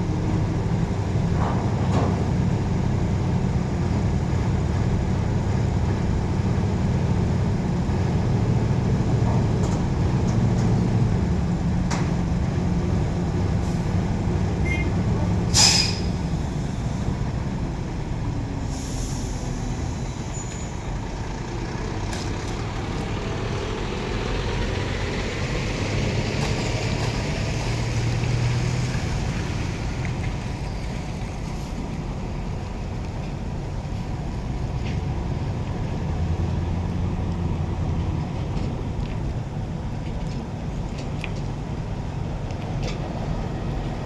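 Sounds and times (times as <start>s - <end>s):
diesel truck engine running: 0.0s - 44.0s
air brakes hissing: 13.6s - 17.3s, 18.4s - 21.0s.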